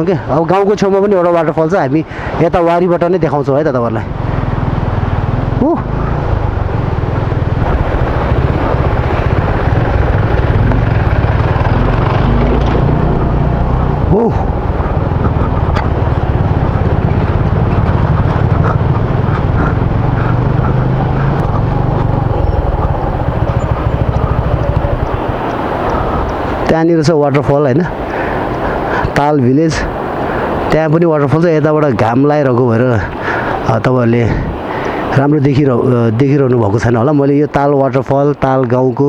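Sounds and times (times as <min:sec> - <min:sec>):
motorcycle engine running: 0:04.0 - 0:26.8
wind rumble on microphone: 0:04.1 - 0:29.2.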